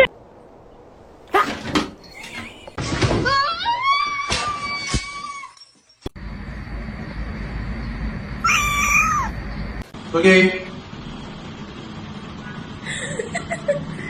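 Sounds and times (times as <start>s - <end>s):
cat meowing: 8.4s - 9.4s.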